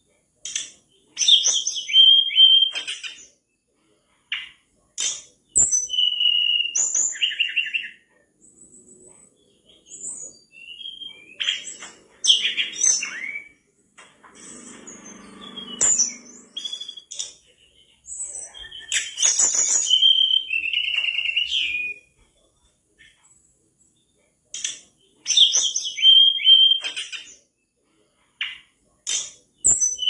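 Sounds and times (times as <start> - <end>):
bird singing whistled phrases: 1.2 - 3.2, 5.6 - 8.0, 9.8 - 13.6, 14.9 - 17.4, 18.3 - 22.2, 25.3 - 27.3.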